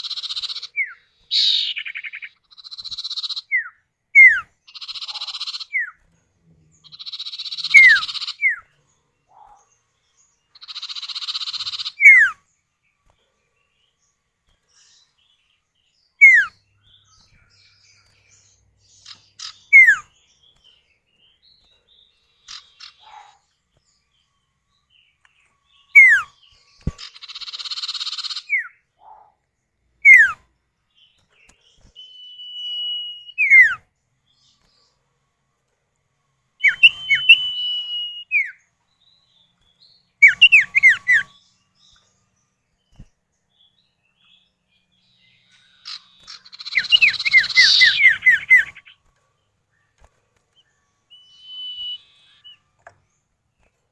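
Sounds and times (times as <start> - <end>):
harsh buzzy bird churrs: 4.7 - 5.8, 6.9 - 8.6, 10.6 - 12.2, 27.0 - 29.3, 45.8 - 48.9
bird whistles sliding downward: 19.4 - 20.0, 32.0 - 33.8, 36.6 - 38.6, 46.3 - 48.9, 51.2 - 52.6.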